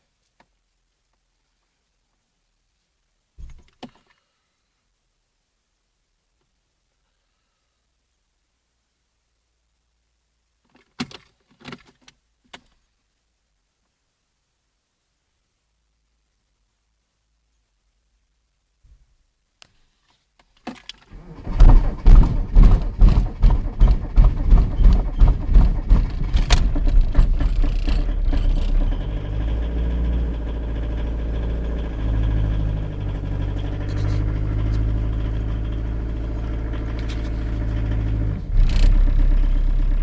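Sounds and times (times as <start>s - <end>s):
diesel engine cold starting: 21.1s - 40.0s.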